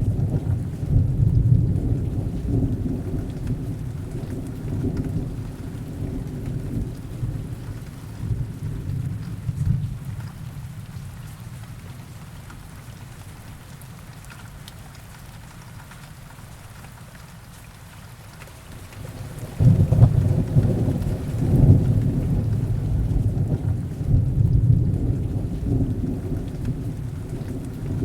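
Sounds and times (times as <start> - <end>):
low thunder rumble: 0.0 - 10.8, 19.0 - 28.0
heavy rain: 0.0 - 28.0.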